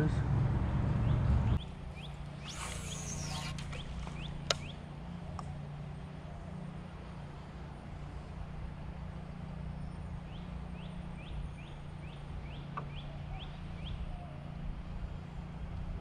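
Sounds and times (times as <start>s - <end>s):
bird calling rising notes: 1.0s - 7.2s, 9.4s - 14.8s.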